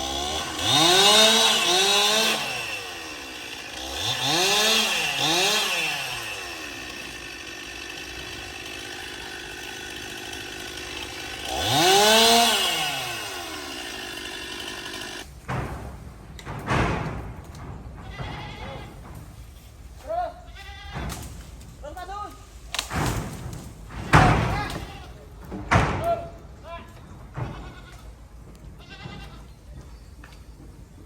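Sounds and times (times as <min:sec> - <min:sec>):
chainsaw idling and revving: 0:00.0 - 0:15.3.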